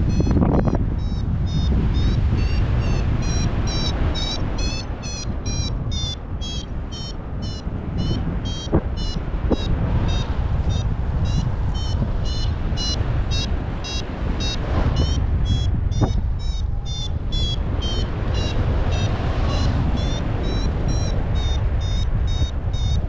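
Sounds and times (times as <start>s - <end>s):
variometer beeping: 0.0s - 23.0s
wind rushing over microphone: 0.0s - 23.0s.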